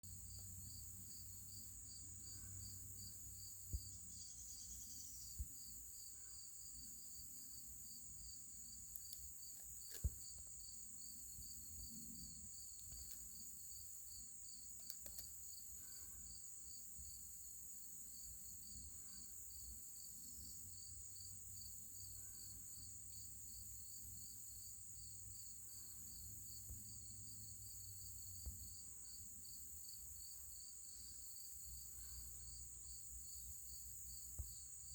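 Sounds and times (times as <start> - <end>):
continuous high insect trill: 0.0 - 34.9
insect chirp pulsing: 0.1 - 34.9
soft clicks: 14.8 - 15.3.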